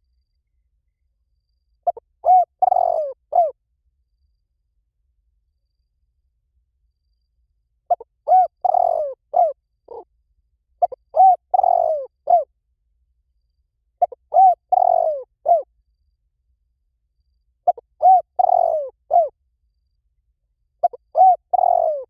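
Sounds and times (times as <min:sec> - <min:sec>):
dove cooing: 0:01.9 - 0:03.6, 0:07.9 - 0:10.1, 0:10.8 - 0:12.5, 0:14.0 - 0:15.7, 0:17.7 - 0:19.3, 0:20.8 - 0:22.0.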